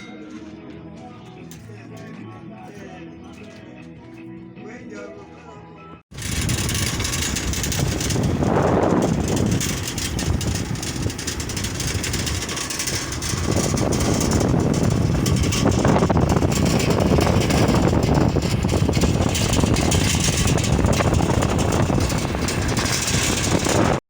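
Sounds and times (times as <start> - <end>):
vehicle engine and road noise: 6.1 - 24.0
wind rush on microphone: 6.1 - 24.0.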